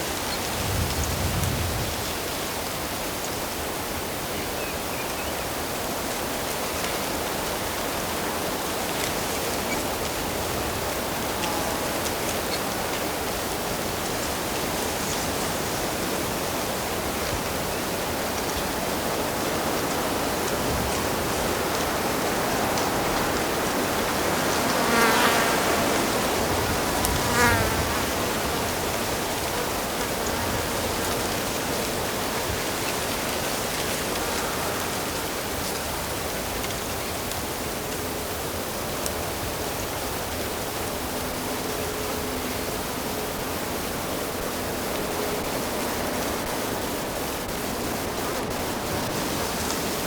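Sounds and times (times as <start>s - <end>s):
flying insect buzzing past: 22.4s - 31.6s.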